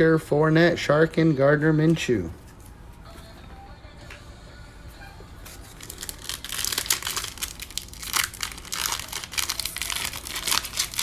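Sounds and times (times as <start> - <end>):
wrapper tearing and rustling: 5.5 - 11.0.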